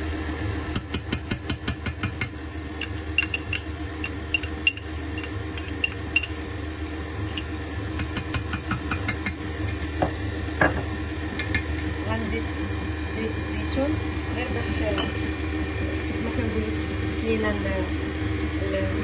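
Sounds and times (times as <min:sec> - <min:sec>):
steady low hum: 0:00.0 - 0:19.0
metal spoon clinking against glass: 0:02.8 - 0:06.3.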